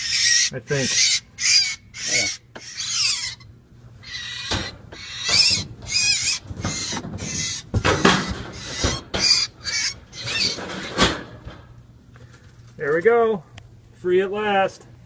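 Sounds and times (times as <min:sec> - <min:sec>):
starling chick squawking: 0:00.0 - 0:11.0.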